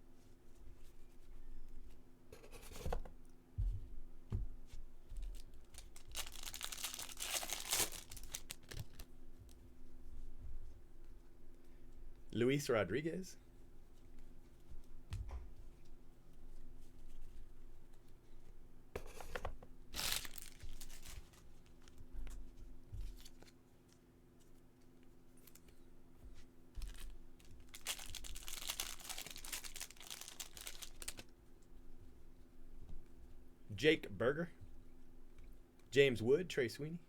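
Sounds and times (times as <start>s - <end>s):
wrapper crinkling: 5.3s - 9.1s, 19.9s - 22.0s, 26.8s - 31.3s
wrapper tearing: 5.3s - 9.1s, 20.0s - 21.9s, 26.8s - 31.3s.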